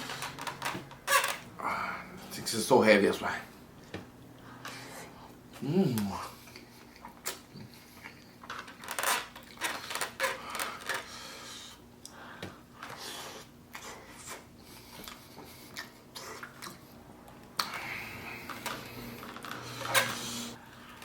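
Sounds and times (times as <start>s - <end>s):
chewing with wet clicks: 6.4s - 8.8s, 14.9s - 17.8s.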